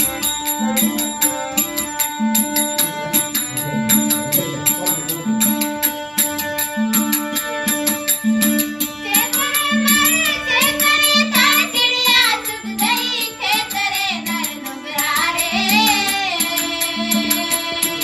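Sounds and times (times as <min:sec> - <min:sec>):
person singing devotional song: 0:00.0 - 0:07.4, 0:08.8 - 0:18.0
low instrumental figure: 0:00.0 - 0:08.8
steady percussion: 0:00.0 - 0:18.0.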